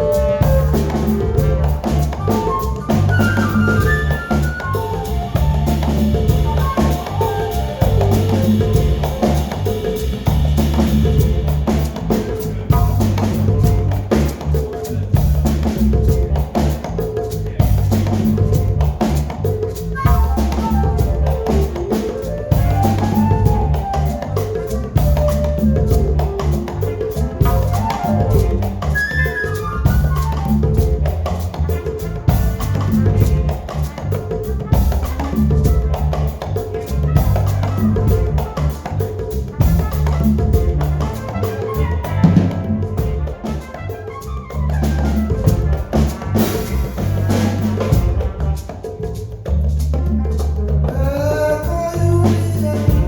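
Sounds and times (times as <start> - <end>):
live band playing: 0.0 - 53.0.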